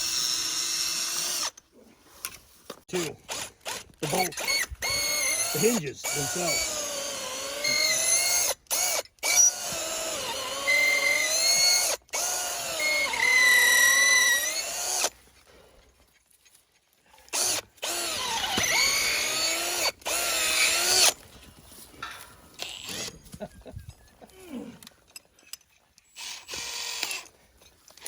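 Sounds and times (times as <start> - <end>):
power drill running: 3.3 - 15.1, 17.4 - 21.2, 26.2 - 27.3.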